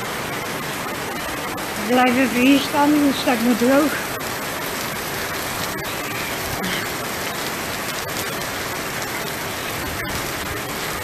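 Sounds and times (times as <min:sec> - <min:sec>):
heavy rain on pavement: 0:00.0 - 0:11.0.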